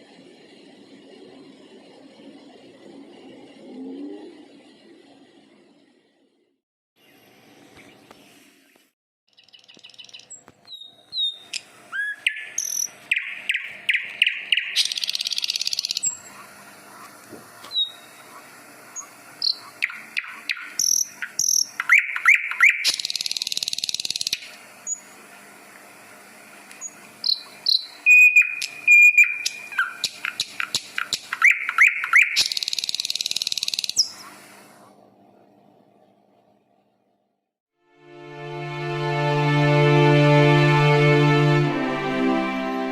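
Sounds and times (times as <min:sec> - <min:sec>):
songbird singing: 0:07.0 - 0:25.1, 0:26.8 - 0:34.3.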